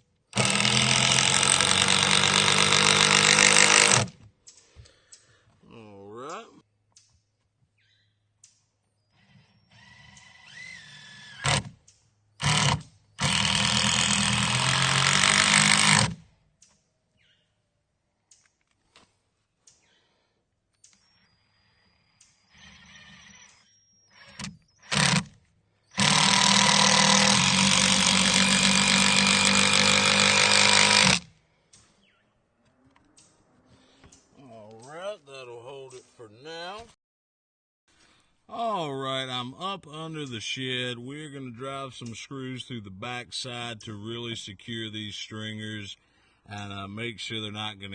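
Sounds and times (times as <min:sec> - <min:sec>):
power driver driving screws: 0:00.3 - 0:04.2, 0:09.2 - 0:11.8, 0:12.4 - 0:16.3, 0:22.5 - 0:31.3.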